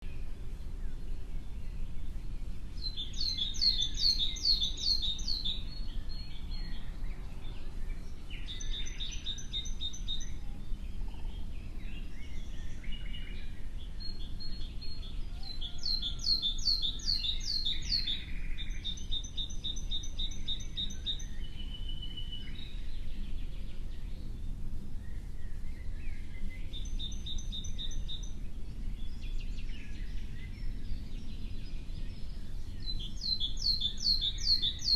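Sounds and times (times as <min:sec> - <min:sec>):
songbird singing high notes: 0:32.8 - 0:34.9.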